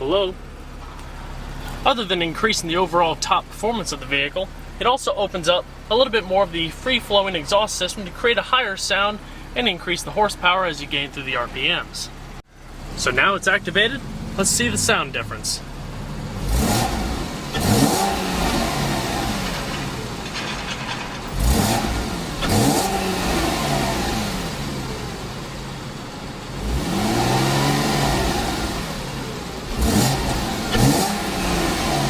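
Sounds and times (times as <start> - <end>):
car engine revving: 12.2 - 32.0.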